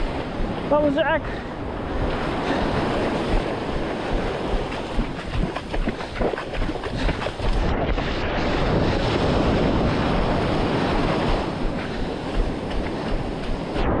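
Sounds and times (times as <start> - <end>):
sea surf washing: 0.0 - 14.0
wind buffeting microphone: 0.0 - 14.0.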